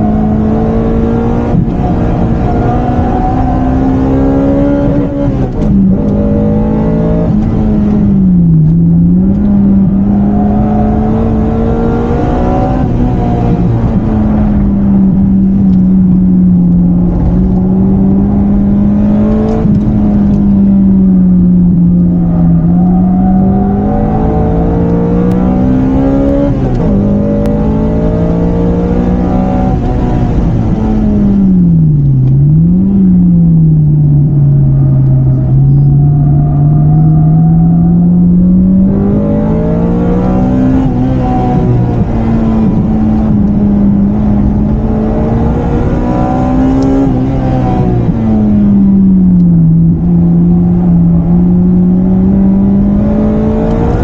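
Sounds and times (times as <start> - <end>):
car engine revving on a track: 0.0 - 54.0.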